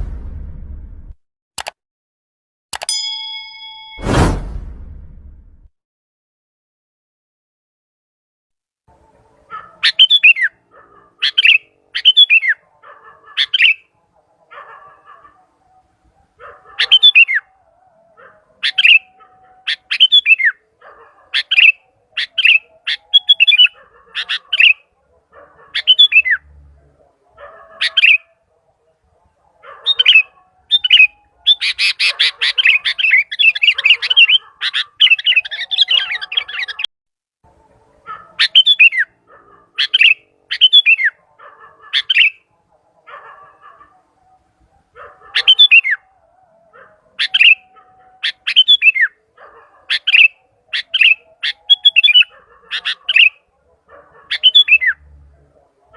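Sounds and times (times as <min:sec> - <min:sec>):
bird whistling and chattering: 0:09.8 - 0:10.6, 0:11.2 - 0:12.6, 0:13.4 - 0:13.9, 0:16.8 - 0:17.4, 0:18.6 - 0:19.1, 0:19.7 - 0:20.6, 0:21.4 - 0:24.8, 0:25.7 - 0:26.4, 0:27.8 - 0:28.3, 0:29.9 - 0:36.9, 0:38.4 - 0:39.1, 0:39.8 - 0:41.2, 0:42.0 - 0:42.4, 0:45.4 - 0:46.0, 0:47.2 - 0:47.6, 0:48.2 - 0:49.1, 0:49.9 - 0:53.4, 0:54.3 - 0:55.0.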